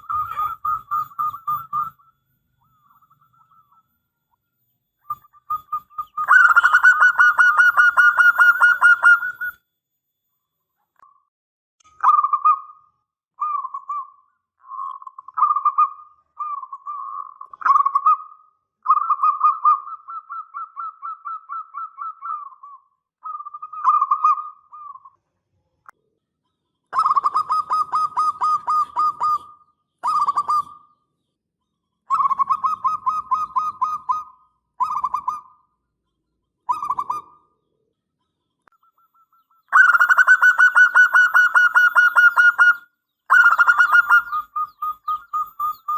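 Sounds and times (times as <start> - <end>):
dove cooing: 0.0 - 2.1, 5.1 - 9.6, 27.0 - 30.9, 32.1 - 35.6, 36.7 - 37.6, 39.4 - 45.9.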